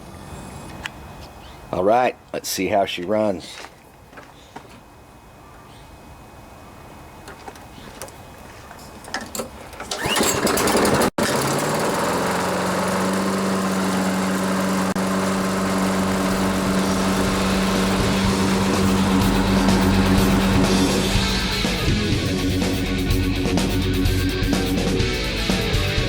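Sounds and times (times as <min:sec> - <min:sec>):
starter rope pulled: 0:09.8 - 0:20.7
lawn mower engine running: 0:09.8 - 0:24.0.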